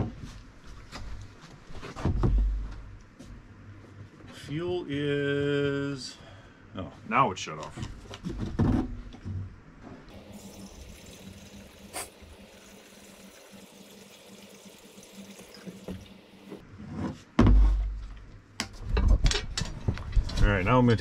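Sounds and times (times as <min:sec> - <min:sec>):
gasoline pouring: 0:10.1 - 0:16.6.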